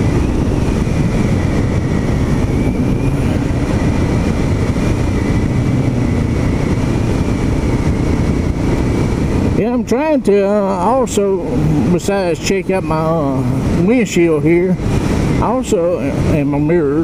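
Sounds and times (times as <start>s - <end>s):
motorcycle engine cruising: 0.0s - 16.6s
riding noise rush: 0.0s - 17.0s.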